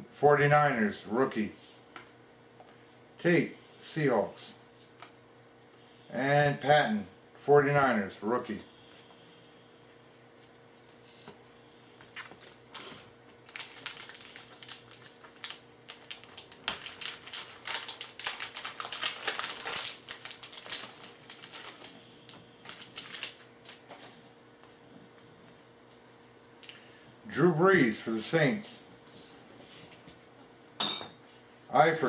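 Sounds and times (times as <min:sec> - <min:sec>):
foil wrapper crinkling: 0:12.1 - 0:24.0.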